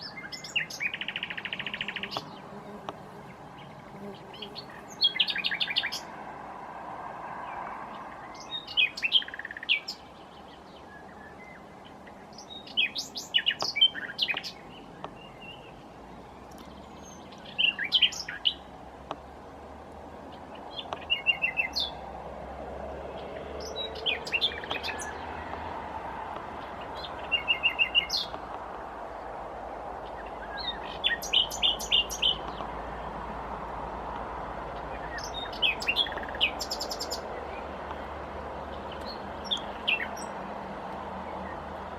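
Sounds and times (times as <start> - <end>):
nightingale singing: 0.0 - 2.6, 3.2 - 6.1, 8.2 - 18.7, 20.4 - 22.0, 23.2 - 25.3, 26.6 - 28.4, 30.0 - 32.8, 34.8 - 38.1, 38.7 - 40.4.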